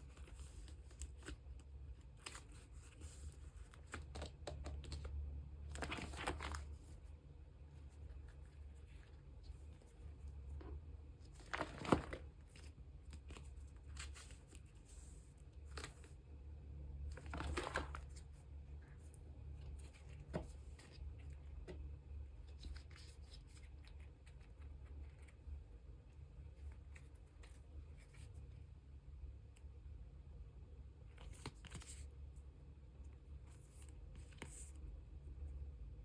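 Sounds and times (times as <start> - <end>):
plastic sleeves rustling: 0.0 - 16.3, 17.0 - 24.4
crinkly plastic swishes: 5.6 - 7.1, 8.6 - 16.1, 17.1 - 18.4.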